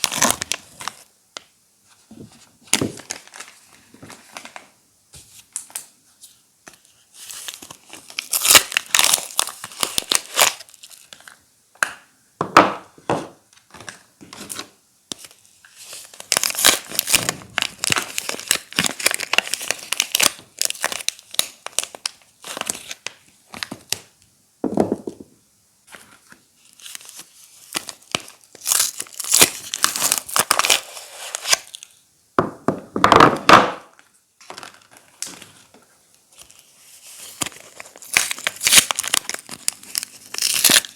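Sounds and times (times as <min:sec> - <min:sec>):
wrappers crinkling and tearing: 0:00.0 - 0:01.1, 0:06.7 - 0:11.4, 0:13.8 - 0:24.1, 0:25.9 - 0:32.0, 0:34.4 - 0:35.7, 0:36.3 - 0:40.9.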